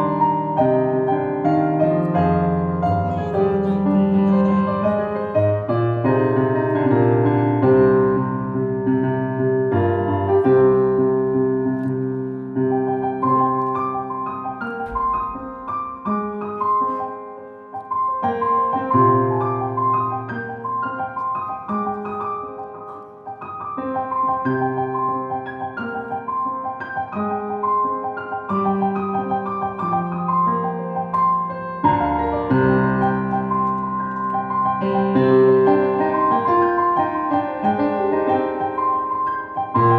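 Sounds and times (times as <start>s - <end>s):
solo piano playing chords: 0.0s - 39.9s.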